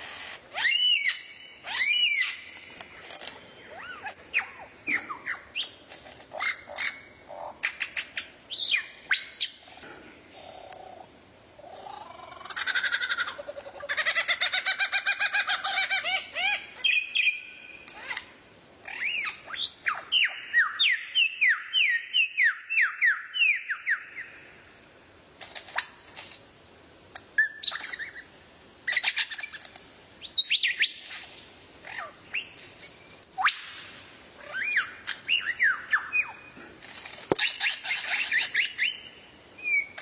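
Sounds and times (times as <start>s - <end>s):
songbird singing: 0.6s - 12.7s, 13.3s - 24.7s, 27.4s - 36.6s, 37.2s - 40.0s.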